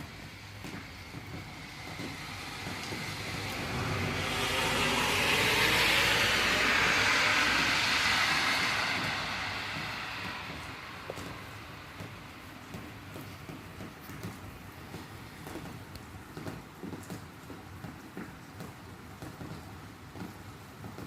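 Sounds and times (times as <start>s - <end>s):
tyre hiss on wet road: 0.0s - 16.2s
rain: 0.0s - 21.0s.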